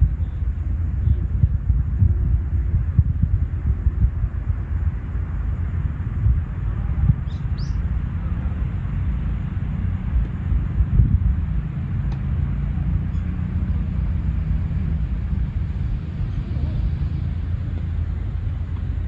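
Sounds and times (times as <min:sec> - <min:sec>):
low outdoor rumble: 0:00.0 - 0:19.0
high bird chirps: 0:07.2 - 0:07.8.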